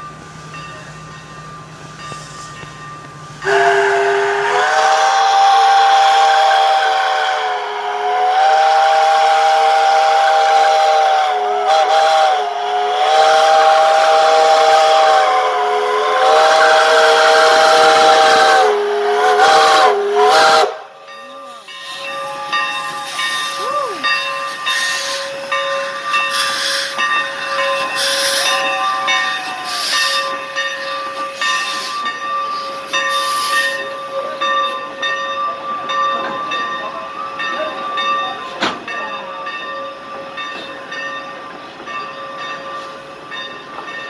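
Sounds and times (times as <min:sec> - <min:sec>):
steam hiss: 0:00.0 - 0:44.0
steam locomotive whistle: 0:03.4 - 0:34.4.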